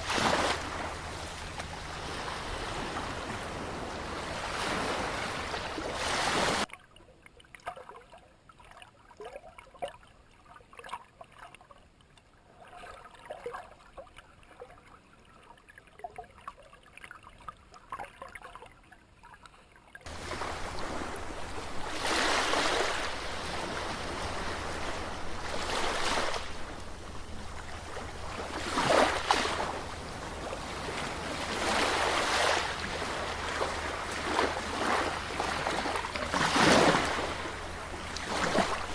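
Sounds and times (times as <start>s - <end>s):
water washing in waves: 0.0s - 6.7s, 20.0s - 38.9s
faint water lapping: 0.0s - 38.9s.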